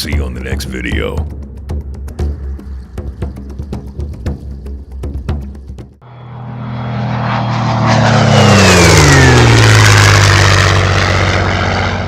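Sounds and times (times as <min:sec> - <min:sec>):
propeller airplane passing: 0:00.4 - 0:12.0.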